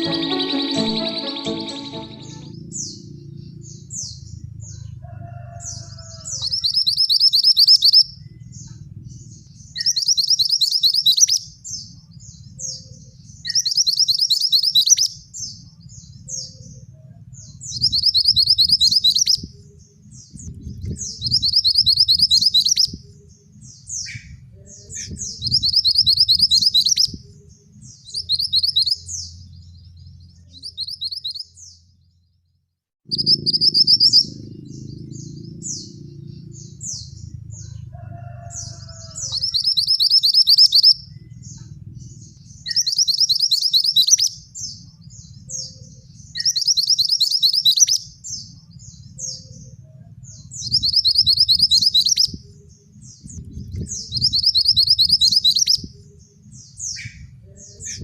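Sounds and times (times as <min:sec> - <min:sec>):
bird singing trilled notes: 0:00.0 - 0:04.5, 0:06.4 - 0:32.2, 0:33.0 - 0:37.8, 0:38.6 - 0:58.0
low rumble: 0:41.0 - 0:42.7.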